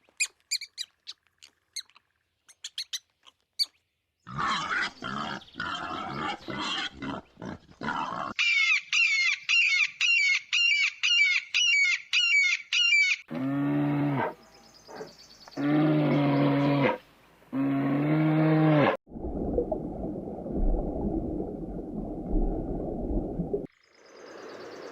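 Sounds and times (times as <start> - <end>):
bird chirping: 0.0 - 4.0, 14.4 - 15.7
cow mooing: 13.3 - 14.4.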